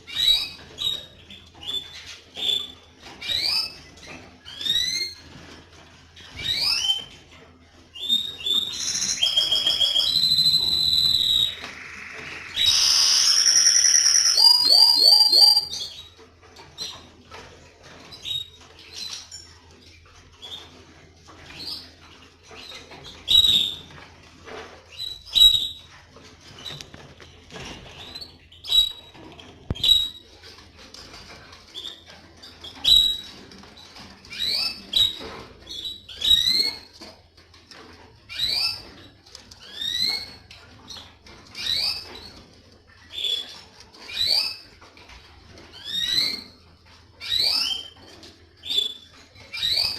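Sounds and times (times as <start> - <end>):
canaries trilling: 0.0 - 37.1, 37.7 - 49.9
bird chirps and calls: 8.0 - 16.1.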